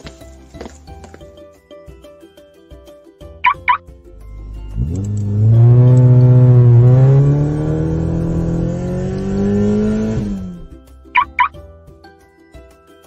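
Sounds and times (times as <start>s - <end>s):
short high blips: 3.4s - 3.8s, 11.2s - 11.6s
car engine accelerating: 4.2s - 10.8s.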